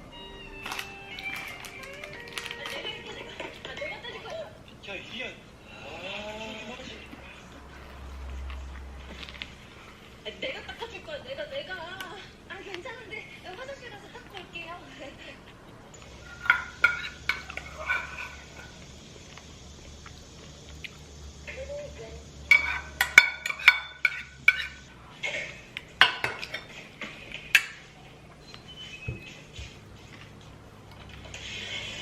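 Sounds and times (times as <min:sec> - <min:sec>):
dishes and utensils clattering: 0:00.7 - 0:04.4, 0:15.9 - 0:18.8, 0:22.5 - 0:28.0.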